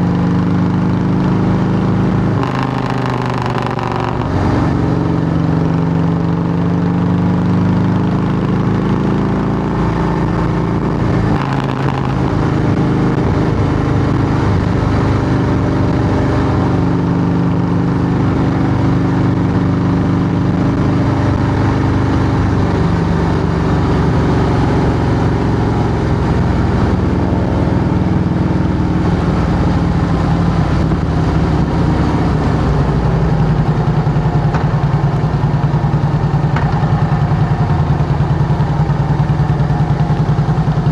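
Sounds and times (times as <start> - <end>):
motorcycle engine running loud: 0.0 - 40.9.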